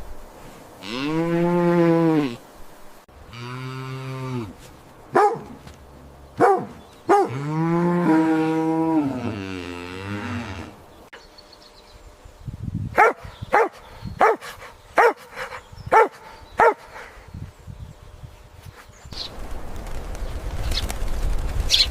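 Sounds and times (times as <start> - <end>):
cattle mooing: 7.2 - 10.8.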